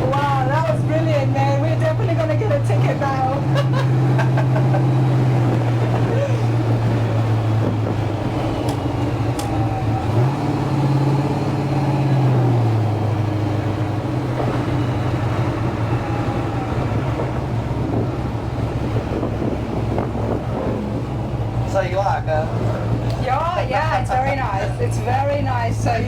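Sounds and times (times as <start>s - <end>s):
pickup engine droning: 0.0s - 26.0s.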